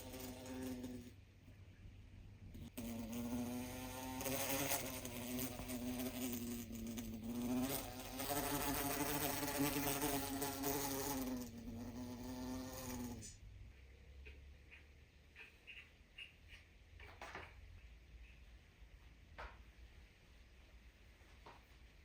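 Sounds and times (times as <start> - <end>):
small electric motor buzzing: 0.0 - 1.2, 2.6 - 13.4.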